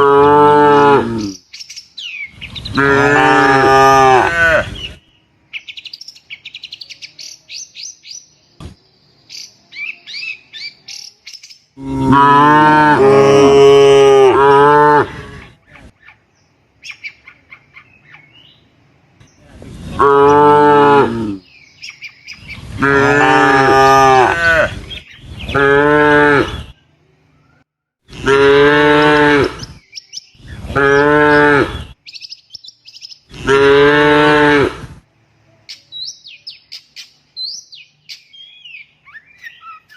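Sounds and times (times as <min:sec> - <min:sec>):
small birds chirping: 0:01.0 - 0:03.1, 0:04.5 - 0:11.9, 0:14.5 - 0:20.4, 0:21.2 - 0:22.9, 0:24.7 - 0:27.7, 0:29.4 - 0:33.5, 0:35.3 - 0:39.9
cattle mooing: 0:02.7 - 0:04.8, 0:11.8 - 0:15.5, 0:22.8 - 0:24.8, 0:28.1 - 0:29.6, 0:33.3 - 0:34.9.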